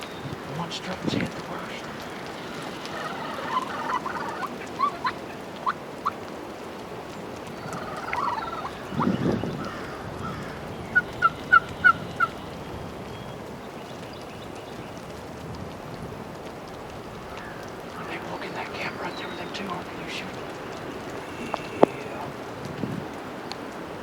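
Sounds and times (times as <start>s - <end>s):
turkey gobbling: 1.4s - 6.2s, 7.5s - 9.9s, 10.9s - 12.4s, 17.5s - 22.4s
turkey yelps: 2.2s - 6.2s, 7.5s - 10.4s, 11.0s - 12.4s.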